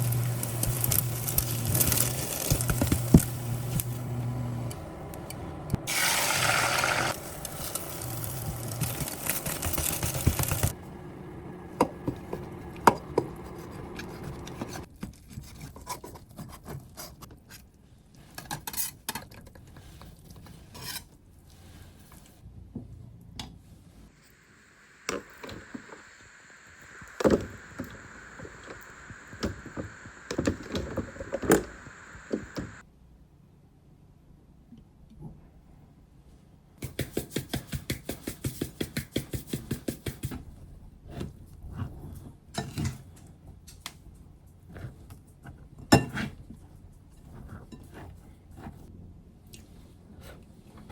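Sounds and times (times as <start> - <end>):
faint steady hum: 24.0 - 32.8
loud hissing rush: 24.2 - 32.8.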